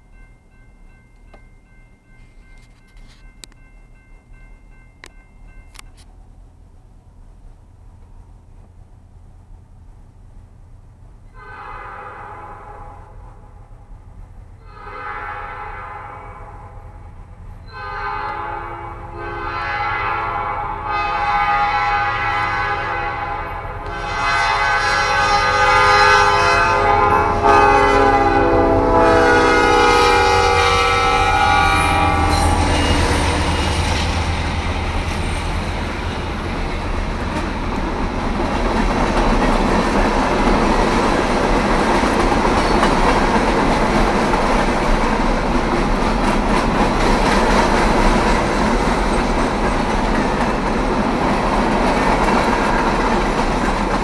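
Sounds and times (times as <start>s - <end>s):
train horn chord: 11.3s - 13.7s, 14.6s - 36.3s
diesel engines humming: 22.1s - 44.2s
freight wagons rolling on rails: 30.0s - 54.0s.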